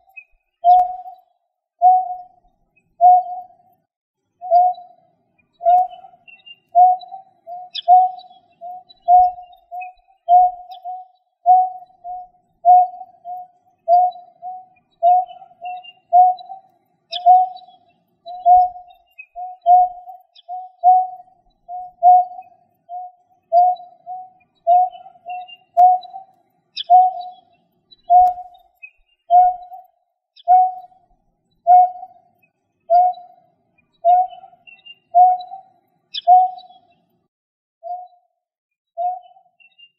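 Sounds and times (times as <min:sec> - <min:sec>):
faint high chirps: 0:00.0 - 0:37.2
low hooting bird call: 0:03.0 - 0:03.5, 0:05.6 - 0:27.4, 0:31.7 - 0:32.1, 0:34.0 - 0:36.7.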